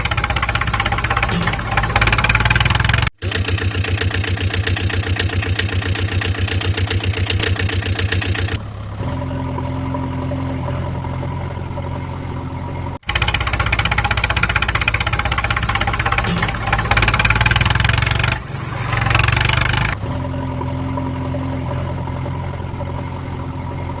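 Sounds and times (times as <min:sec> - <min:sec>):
vehicle engine idling and revving: 0:00.0 - 0:24.0.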